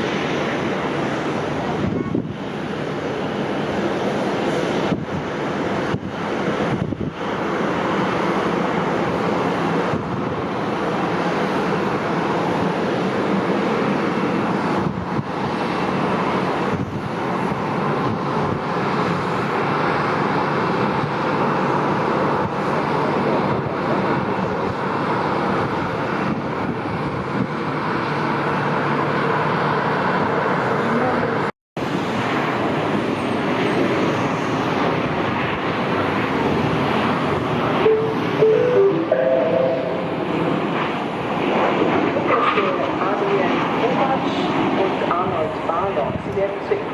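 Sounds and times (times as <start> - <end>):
jet engines running: 0.0 - 46.9.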